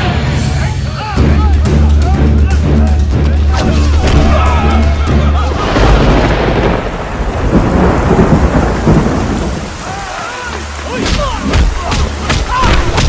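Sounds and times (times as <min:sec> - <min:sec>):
heavy rain: 0:00.0 - 0:13.0
thunder clap rolling: 0:03.7 - 0:13.0.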